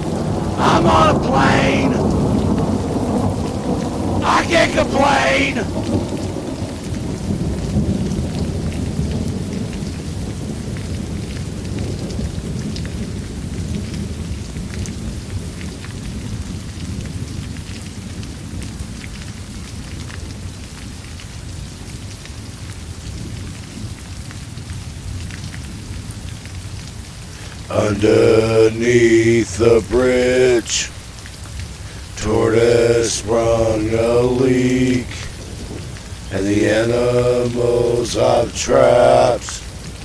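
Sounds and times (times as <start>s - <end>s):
rain falling: 0.0s - 40.0s
low rumble of thunder: 1.9s - 4.2s, 5.7s - 20.8s, 35.1s - 36.3s.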